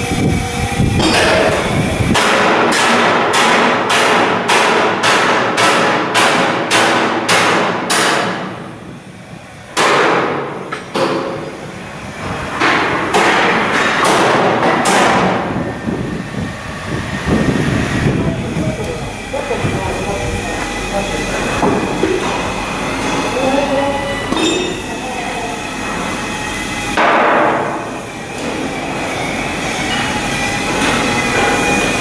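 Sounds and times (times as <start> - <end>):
hammer striking steel: 2.2 - 8.6, 9.8 - 11.5, 12.6 - 15.4, 24.2 - 25.0.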